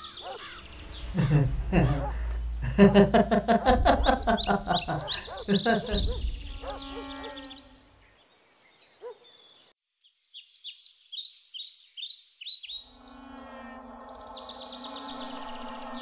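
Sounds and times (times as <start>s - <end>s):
songbirds chirping: 0.0s - 16.0s
fast high trills: 0.6s - 7.8s, 12.9s - 16.0s
low humming tone: 0.6s - 8.0s, 12.9s - 16.0s.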